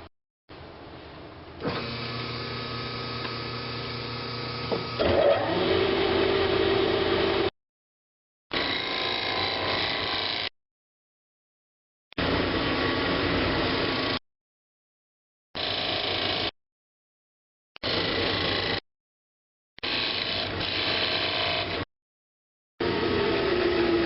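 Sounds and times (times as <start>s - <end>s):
turning tool cutting wood: 8.6s - 10.5s, 19.8s - 21.9s, 22.8s - 24.0s
lathe motor hum: 22.8s - 24.0s.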